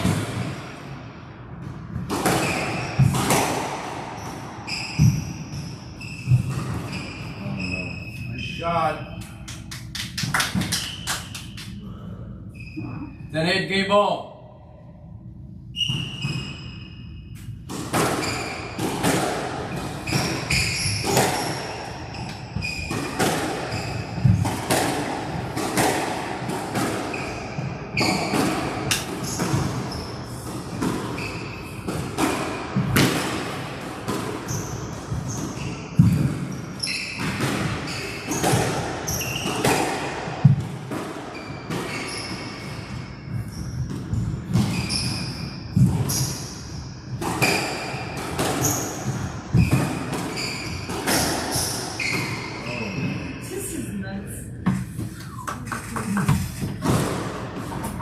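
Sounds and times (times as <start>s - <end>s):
squash ball struck by racquet: 0.0s - 0.7s, 1.6s - 7.1s, 17.7s - 52.5s, 56.4s - 58.0s
shoes squeaking on court: 2.2s - 3.5s, 4.2s - 9.7s, 15.8s - 19.1s, 19.7s - 24.8s, 27.1s - 31.9s, 34.4s - 39.8s, 41.3s - 46.7s, 47.4s - 53.4s.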